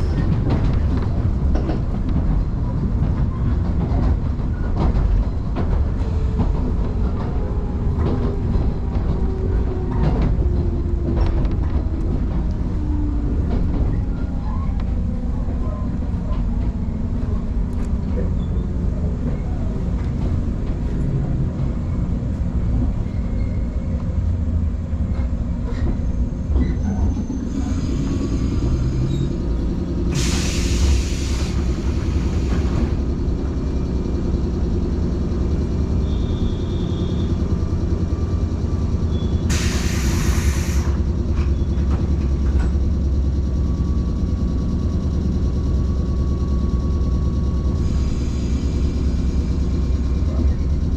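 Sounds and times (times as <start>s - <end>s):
low hum of train equipment: 0.0s - 50.9s
compressed-air hiss: 30.1s - 32.5s, 39.5s - 41.0s.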